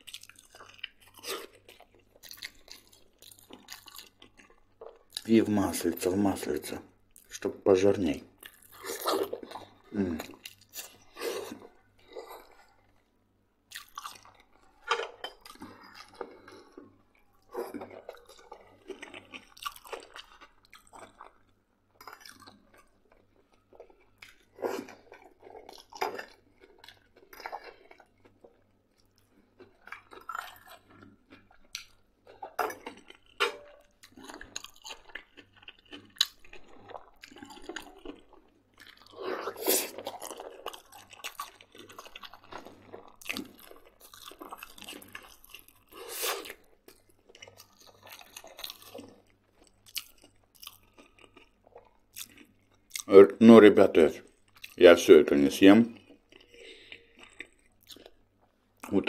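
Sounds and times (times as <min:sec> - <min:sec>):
person chewing: 0:00.0 - 0:05.3, 0:08.1 - 0:13.1, 0:13.7 - 0:53.3, 0:54.2 - 0:55.0, 0:55.6 - 0:59.0.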